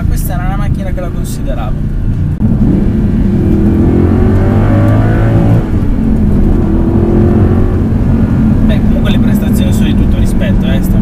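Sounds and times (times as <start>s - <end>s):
car engine revving hard: 2.4s - 11.0s.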